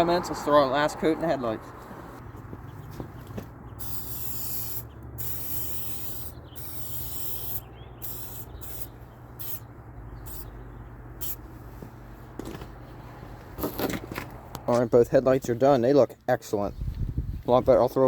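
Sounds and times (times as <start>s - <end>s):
aerosol spray hissing: 3.8s - 9.6s.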